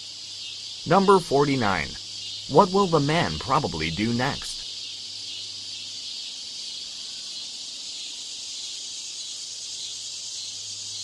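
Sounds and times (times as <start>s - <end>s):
high-pitched hiss: 0.0s - 11.0s
faint low hum: 0.9s - 4.6s.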